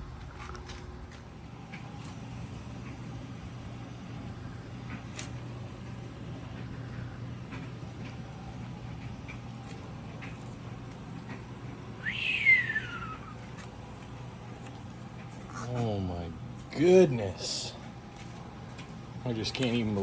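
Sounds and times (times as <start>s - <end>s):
steady low hum: 0.0s - 20.0s
rising and falling call: 12.0s - 13.5s.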